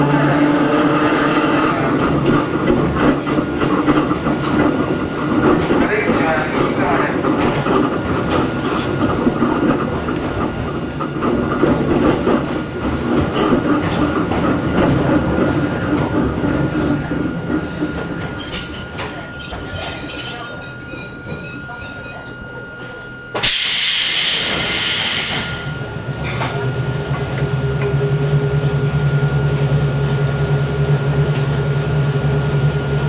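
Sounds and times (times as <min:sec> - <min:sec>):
railcar wheels rumbling: 0:00.0 - 0:33.0
high wheel squeal: 0:08.5 - 0:09.6, 0:15.6 - 0:26.4.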